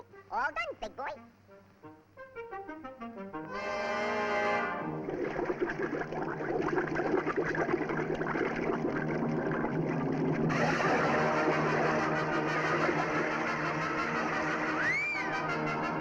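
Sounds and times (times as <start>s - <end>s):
brass music cue: 1.2s - 5.6s, 10.5s - 16.0s.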